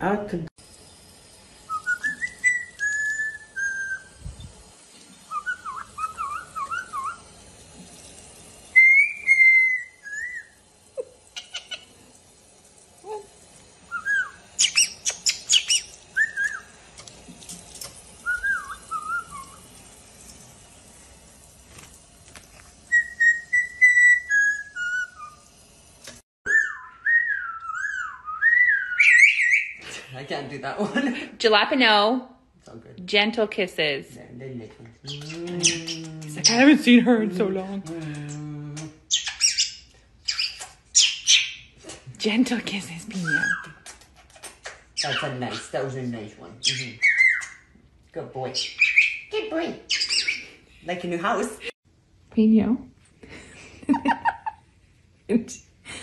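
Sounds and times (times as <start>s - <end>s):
parrot whistling: 1.7s - 4.2s, 5.3s - 7.2s, 8.7s - 10.6s, 13.9s - 16.7s, 18.2s - 19.6s, 22.9s - 25.4s, 26.5s - 29.8s, 39.1s - 41.7s, 43.2s - 43.8s, 45.0s - 45.7s, 46.6s - 47.7s, 48.6s - 49.3s, 49.9s - 50.5s
parrot squawky chirps: 8.8s - 10.6s, 13.9s - 16.7s, 26.5s - 29.8s, 39.1s - 41.7s, 44.7s - 45.7s, 46.6s - 47.7s, 48.6s - 50.5s.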